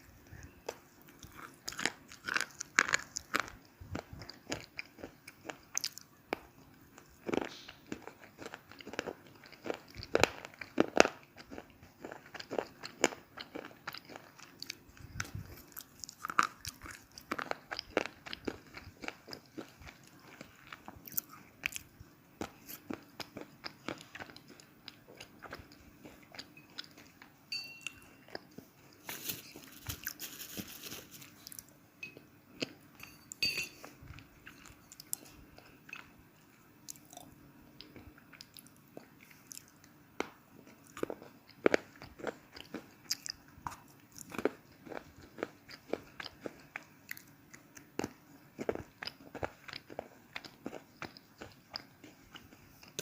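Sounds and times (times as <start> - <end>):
slate pencils crunching: 29.0 - 31.6.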